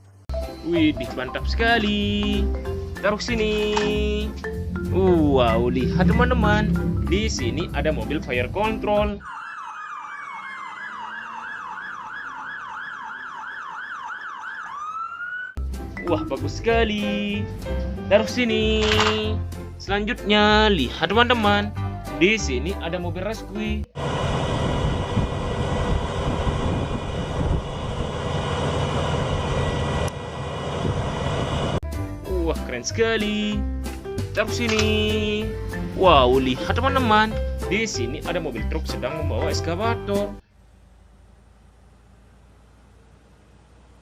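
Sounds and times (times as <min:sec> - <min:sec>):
vehicle engine running: 0:00.0 - 0:09.2, 0:23.9 - 0:31.8, 0:40.4 - 0:44.0
faint engine whine: 0:02.3 - 0:09.2, 0:24.0 - 0:31.8, 0:40.4 - 0:44.0
toy electronic yelp siren: 0:09.2 - 0:15.6.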